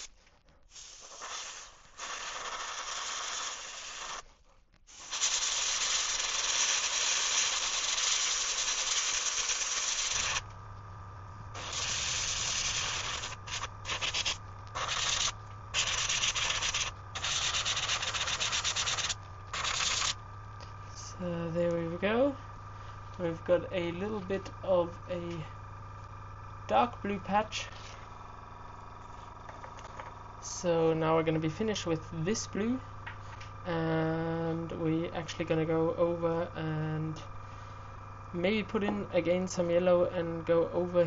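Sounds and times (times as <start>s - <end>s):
steady low hum: 0.0s - 41.0s
airbrush spraying hiss: 0.7s - 4.3s, 4.9s - 10.5s, 11.5s - 20.2s.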